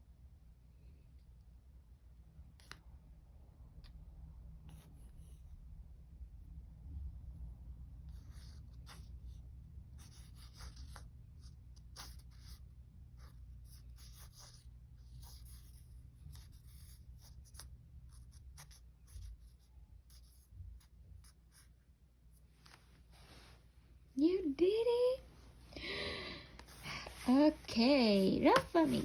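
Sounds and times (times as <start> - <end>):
scratching of drawing on a surface: 4.6 - 5.7, 6.9 - 23.5, 26.6 - 29.0.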